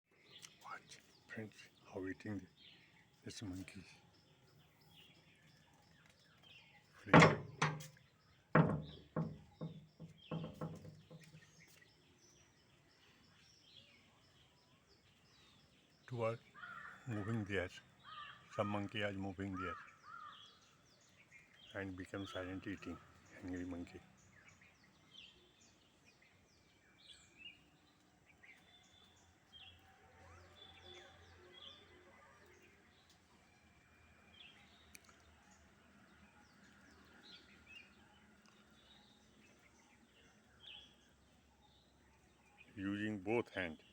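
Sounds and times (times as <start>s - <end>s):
small birds chirping faintly: 0.1s - 43.9s
sharp knocks with low ring: 7.1s - 8.0s, 8.6s - 11.3s.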